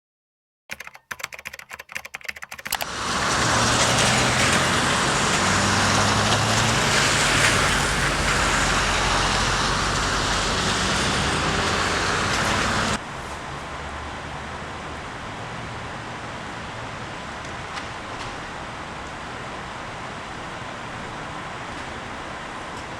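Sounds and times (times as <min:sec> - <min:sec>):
low engine hum: 0:02.8 - 0:13.0
tyres hissing on wet road: 0:02.8 - 0:22.9.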